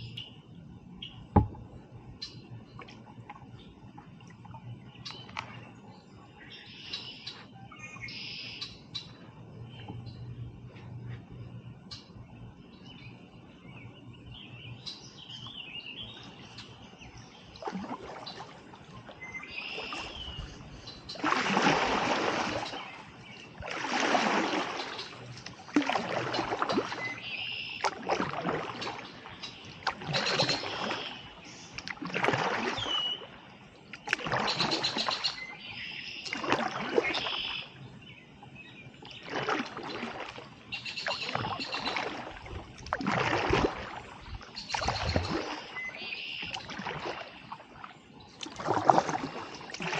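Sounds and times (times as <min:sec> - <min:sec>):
birds chirping: 0:00.0 - 0:39.6, 0:40.6 - 0:42.3, 0:44.2 - 0:48.5
paddle strokes splashing water: 0:15.0 - 0:49.9.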